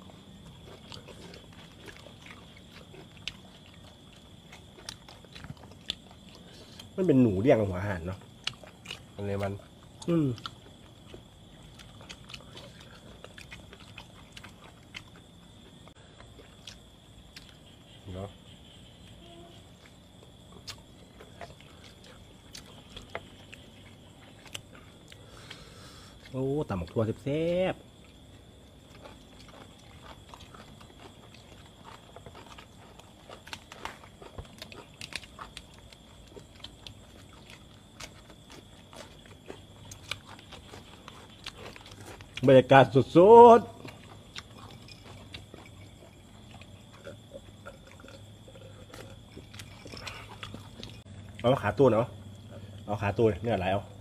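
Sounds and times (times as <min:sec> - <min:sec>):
people chewing meat: 0:00.0 - 0:54.0
lip smacks and crunches: 0:00.1 - 0:07.0, 0:08.2 - 0:17.7, 0:19.8 - 0:26.4, 0:28.1 - 0:43.2, 0:43.8 - 0:51.5
faint steady high tone: 0:17.8 - 0:19.9.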